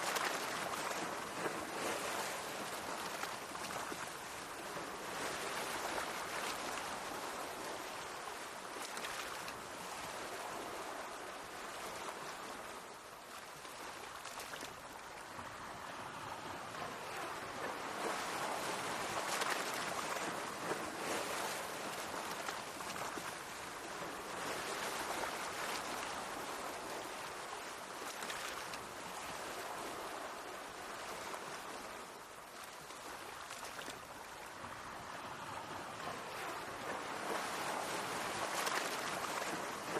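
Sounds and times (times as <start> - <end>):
small waves washing on shore: 0.0 - 39.9.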